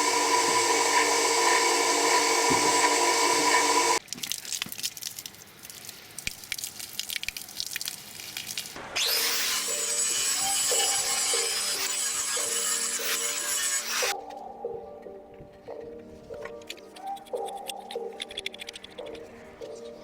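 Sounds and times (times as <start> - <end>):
power tool whining: 0.0 - 4.0, 8.8 - 14.1
music: 9.1 - 20.0.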